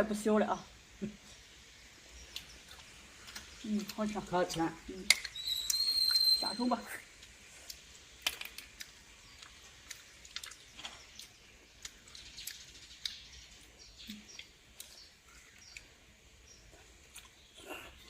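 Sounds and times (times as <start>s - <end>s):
slurping squeaks: 5.2s - 6.8s.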